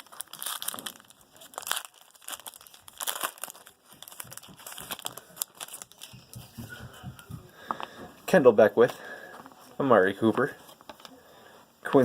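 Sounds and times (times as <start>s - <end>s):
plastic wrapper crinkling and tearing: 0.0s - 6.4s.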